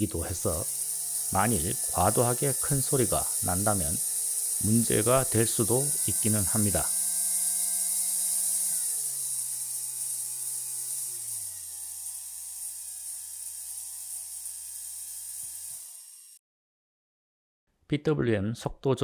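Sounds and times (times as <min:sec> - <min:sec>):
power tool motor whining: 0:00.0 - 0:16.4.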